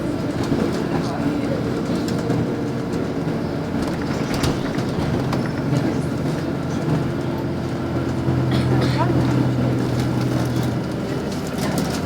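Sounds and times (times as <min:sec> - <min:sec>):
bus diesel engine: 0:00.0 - 0:12.0
road noise: 0:00.0 - 0:12.0
body clicks and rattles: 0:00.3 - 0:12.0.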